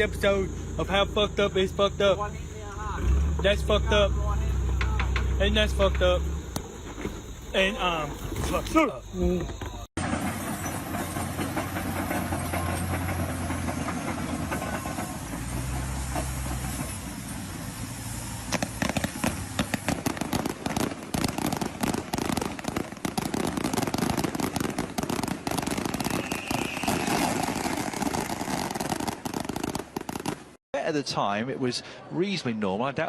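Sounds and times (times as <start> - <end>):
vehicle engine humming: 0.0 - 8.4, 9.0 - 20.3
rapid clattering knocks: 9.5 - 17.0.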